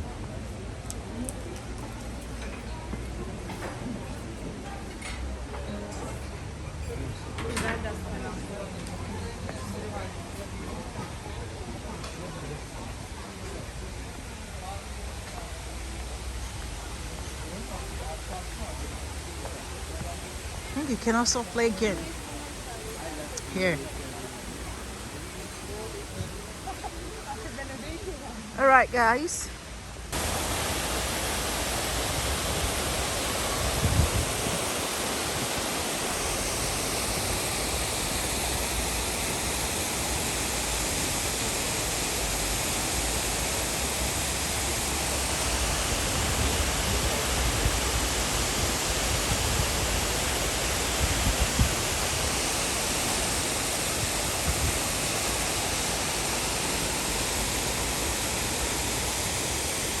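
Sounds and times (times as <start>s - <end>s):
waterfall roaring: 16.2s - 27.8s, 30.1s - 60.0s.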